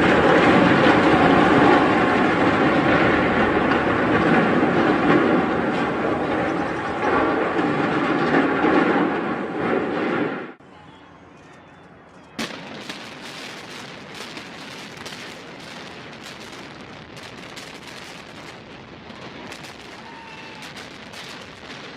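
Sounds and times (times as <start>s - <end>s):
crackling and popping: 12.2s - 21.9s
sharp crack: 12.3s - 21.9s.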